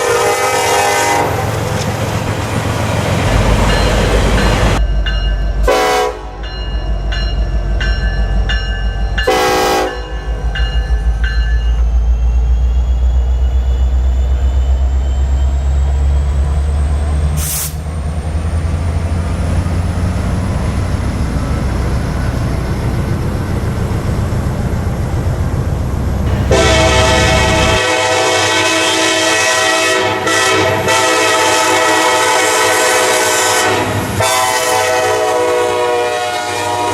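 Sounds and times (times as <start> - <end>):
diesel locomotive horn: 0.0 - 1.9, 5.6 - 6.4, 9.2 - 10.4, 26.3 - 36.9
train rumble with rhythmic clatter: 0.0 - 36.9.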